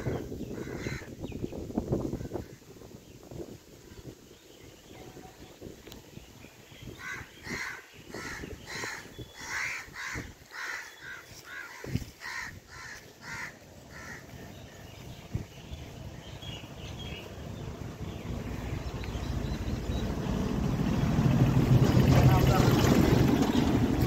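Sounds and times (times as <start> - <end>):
bird rough calls: 6.9 - 14.8
low rumble: 14.3 - 24.0.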